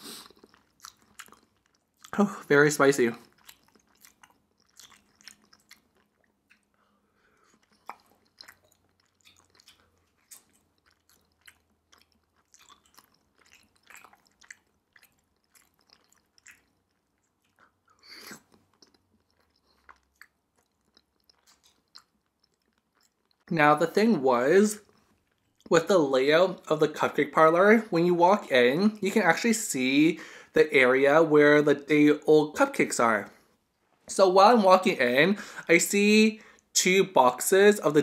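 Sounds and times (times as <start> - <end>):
faint chewing: 0.0 - 23.5, 24.8 - 25.7
small mouth clicks: 3.4 - 23.5.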